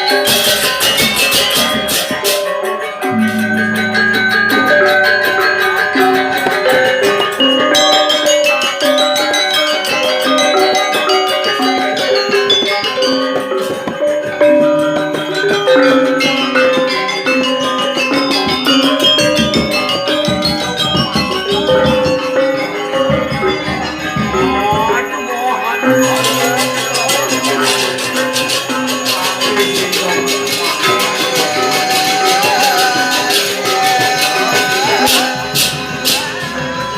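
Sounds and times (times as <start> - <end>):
deep percussion: 0.0 - 9.3, 10.6 - 25.0, 25.9 - 36.9
metallophones playing bright runs: 0.0 - 36.9
cymbal-like clashing: 0.1 - 8.6.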